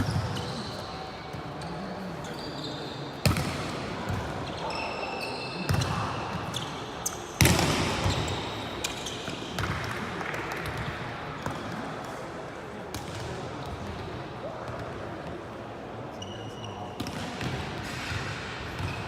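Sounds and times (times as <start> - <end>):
sneakers squeaking on court: 0.0 - 9.8
volleyball hits echoing: 3.2 - 4.4, 7.4 - 11.8.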